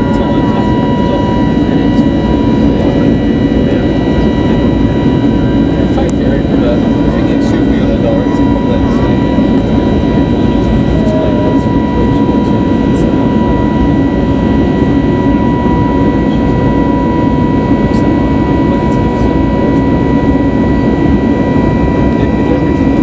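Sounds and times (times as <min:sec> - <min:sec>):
jet cabin noise: 0:00.0 - 0:23.0
thin steady whine: 0:00.0 - 0:23.0.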